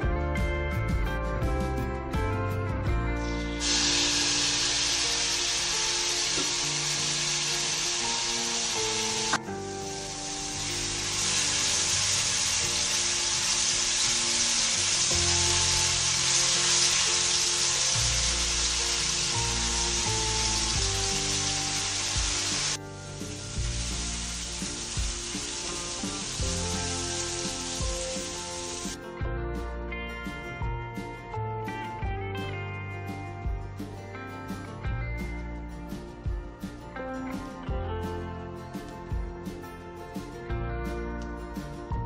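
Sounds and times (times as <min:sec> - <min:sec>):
soft background music: 0:00.0 - 0:42.0
sambal sizzling in hot oil: 0:03.6 - 0:29.0.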